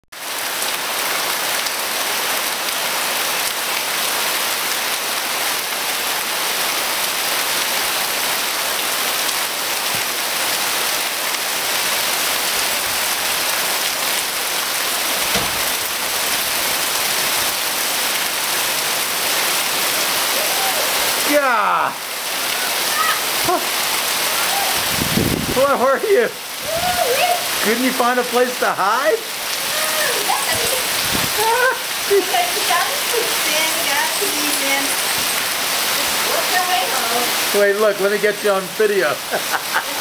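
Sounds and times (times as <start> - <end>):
heavy rain pouring: 0.2 - 40.0
dull thump: 15.2 - 15.9.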